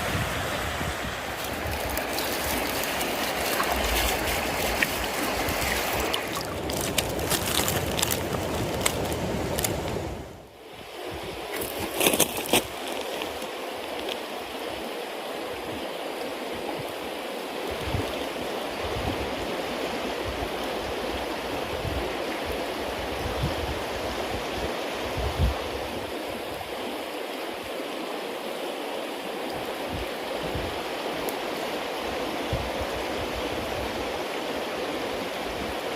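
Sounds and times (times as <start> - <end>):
wet bonfire hissing: 0.0 - 10.4.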